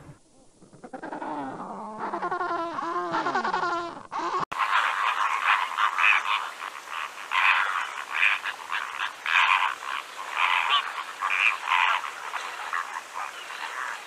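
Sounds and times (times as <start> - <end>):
water birds calling: 4.4 - 14.0.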